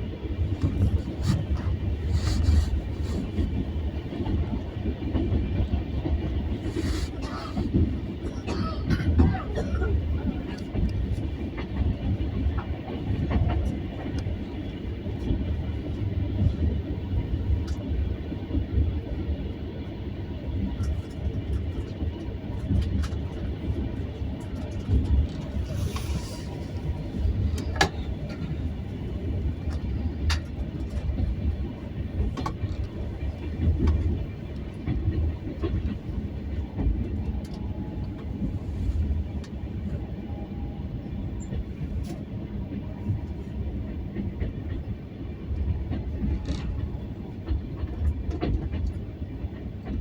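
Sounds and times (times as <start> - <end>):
vehicle rumble: 0.0 - 5.8
train running on rails: 0.0 - 50.0.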